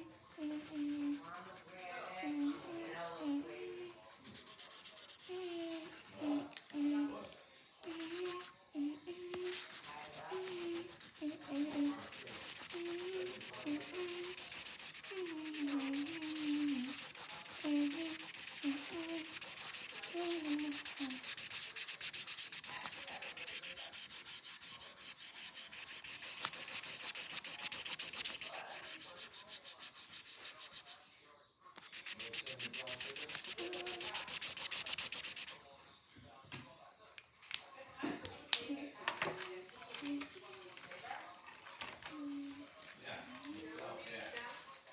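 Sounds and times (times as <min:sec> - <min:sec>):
marker scribbling on paper: 0:00.0 - 0:06.5, 0:07.8 - 0:08.6, 0:09.4 - 0:31.0, 0:31.8 - 0:35.7.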